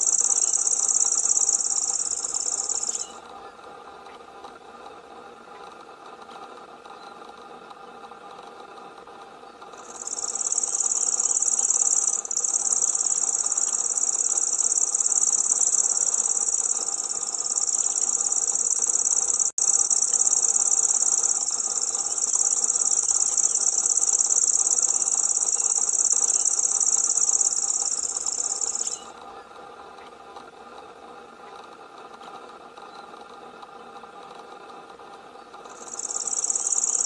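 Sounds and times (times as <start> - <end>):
bird reeling trill: 0.0 - 3.2, 9.8 - 29.1, 35.6 - 37.0.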